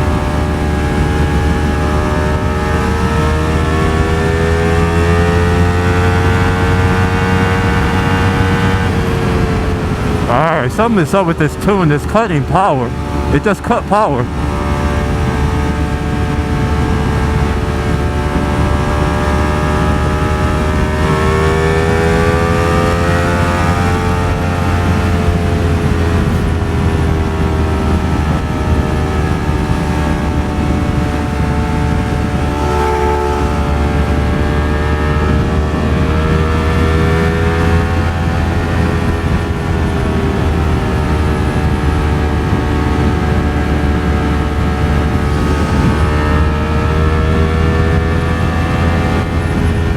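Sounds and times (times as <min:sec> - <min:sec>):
wind roar: 0:14.0 - 0:49.9
motorcycle engine running: 0:14.3 - 0:49.9.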